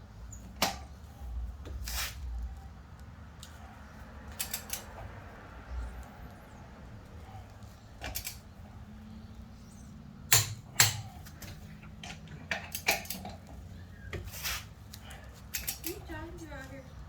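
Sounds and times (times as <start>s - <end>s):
torque wrench clicking: 4.3s - 4.9s, 15.5s - 16.0s
metal clicks: 4.3s - 5.0s, 8.0s - 8.5s, 10.3s - 13.5s, 15.5s - 16.0s.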